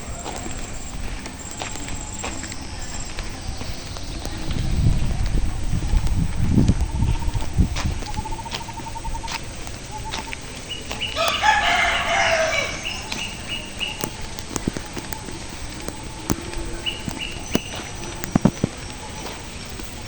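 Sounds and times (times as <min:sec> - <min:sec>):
rooster crowing: 0:11.0 - 0:14.3.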